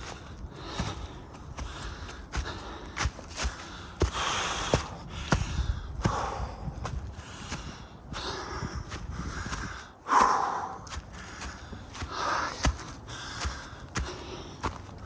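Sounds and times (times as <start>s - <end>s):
footsteps crunching on ice: 0.0s - 15.0s
person breathing hard: 0.0s - 15.0s.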